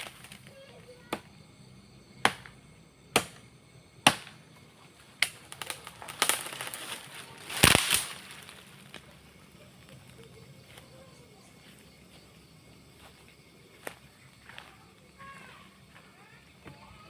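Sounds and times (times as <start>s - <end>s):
blade chopping into tree: 2.2s - 3.4s, 4.0s - 4.4s, 7.5s - 8.2s.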